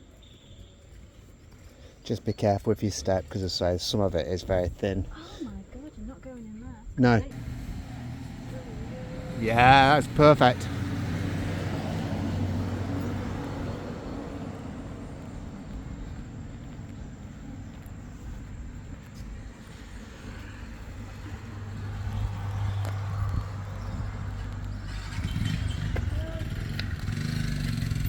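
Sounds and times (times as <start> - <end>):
vehicle hum and tyre noise: 0.0 - 28.0
vehicle approaching: 7.0 - 28.0.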